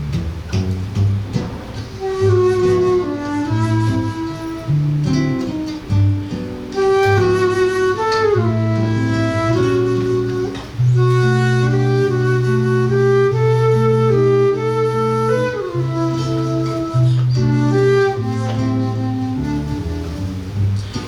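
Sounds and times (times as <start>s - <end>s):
guitar plucked bass and chords: 0.0s - 21.0s
flute melody: 1.4s - 21.0s.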